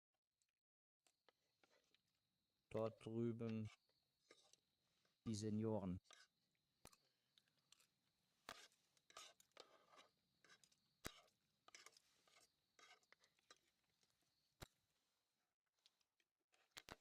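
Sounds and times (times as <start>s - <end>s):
soft scrapes: 8.5s - 13.8s.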